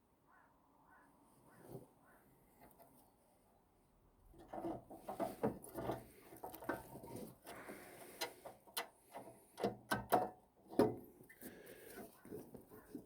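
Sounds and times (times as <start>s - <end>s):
hand tools clunking on metal: 4.4s - 11.1s.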